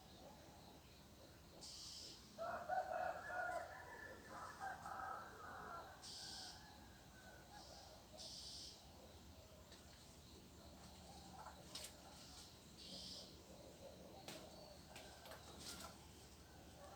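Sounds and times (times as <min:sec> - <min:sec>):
rooster crowing: 0:02.4 - 0:06.7.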